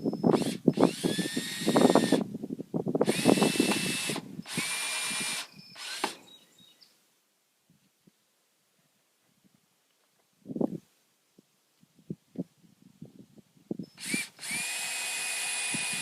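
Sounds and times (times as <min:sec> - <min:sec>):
power drill whining: 0:00.3 - 0:02.3, 0:03.0 - 0:06.4, 0:13.9 - 0:16.0.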